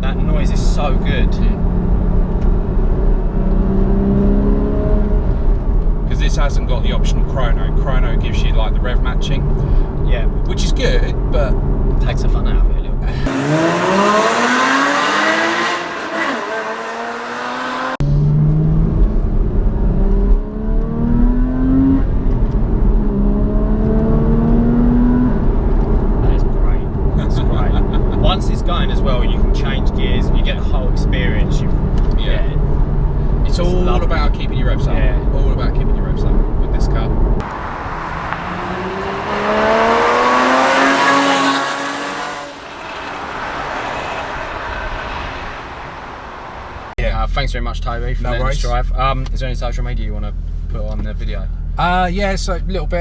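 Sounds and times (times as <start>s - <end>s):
car engine accelerating: 0.0s - 12.4s, 13.1s - 47.0s
low road rumble: 0.0s - 52.8s
car accelerating past: 13.2s - 19.2s, 37.4s - 47.0s
tyre and road noise: 37.2s - 47.0s.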